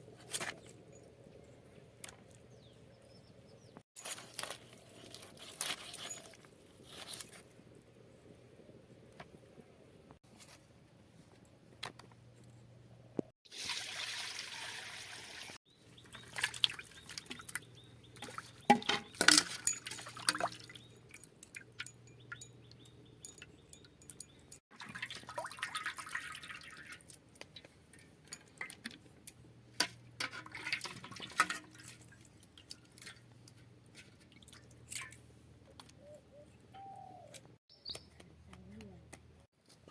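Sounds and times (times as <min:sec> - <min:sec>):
water pouring and splashing: 0:13.4 - 0:21.2, 0:24.7 - 0:27.7, 0:30.2 - 0:33.3, 0:34.0 - 0:35.2.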